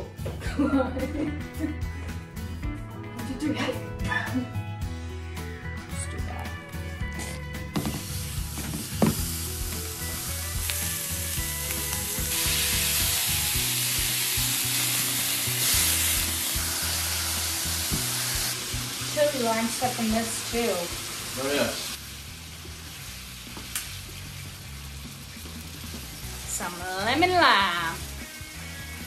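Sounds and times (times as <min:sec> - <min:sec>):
ground beef sizzling in pan: 0:07.8 - 0:29.0.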